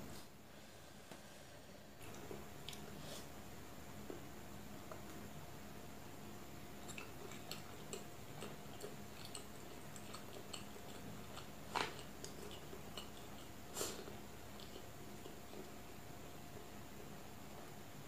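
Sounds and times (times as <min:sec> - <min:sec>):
wet chewing clicks: 0:06.8 - 0:16.0.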